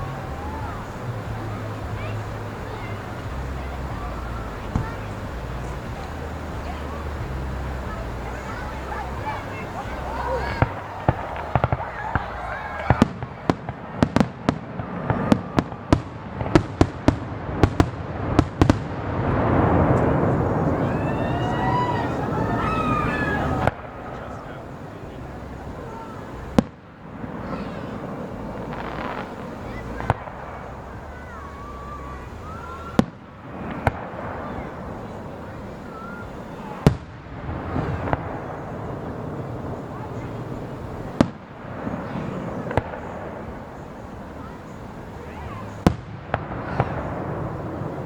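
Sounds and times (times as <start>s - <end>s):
crowd chatter: 0.0s - 48.0s
fireworks bangs: 0.0s - 48.0s.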